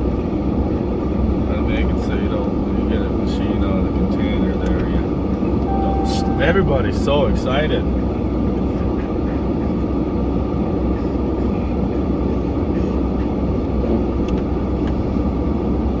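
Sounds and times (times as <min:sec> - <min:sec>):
truck engine rumbling: 0:04.8 - 0:10.8.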